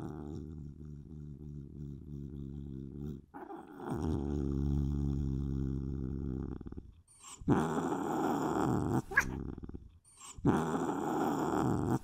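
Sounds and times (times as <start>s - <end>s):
cat growling: 0.0s - 6.7s, 7.4s - 9.7s.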